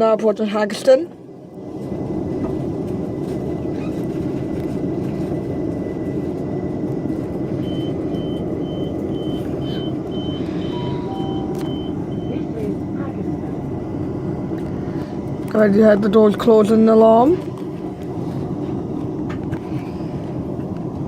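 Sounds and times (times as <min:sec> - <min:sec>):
train rumble inside carriage: 0:00.0 - 0:21.0
door alarm beeping: 0:07.6 - 0:12.4.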